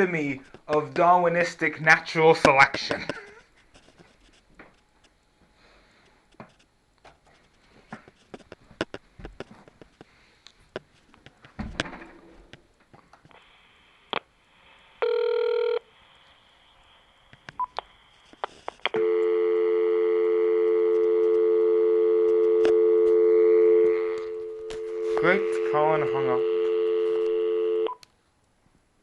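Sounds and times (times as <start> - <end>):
telephone dial tone: 15.0 - 15.8, 18.9 - 28.0.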